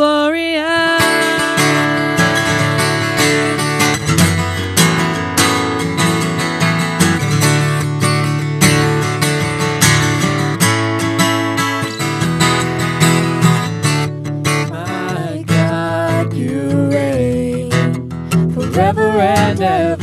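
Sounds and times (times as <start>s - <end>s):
person singing: 0.0s - 3.4s, 14.7s - 20.0s
acoustic guitar strumming chords: 0.0s - 20.0s.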